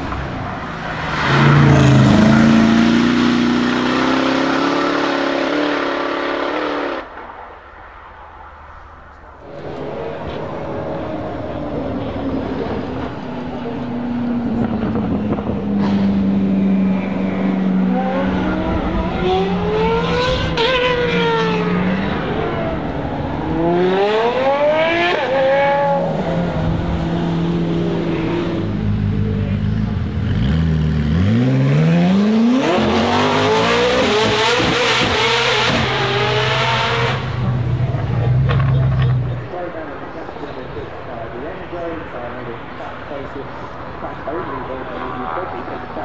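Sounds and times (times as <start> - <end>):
sports car engines revving: 0.0 - 46.0.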